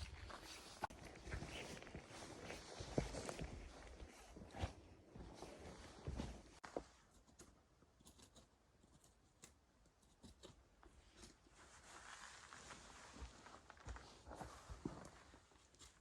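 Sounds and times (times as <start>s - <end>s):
soft rustle: 0.0s - 7.2s, 10.8s - 16.0s.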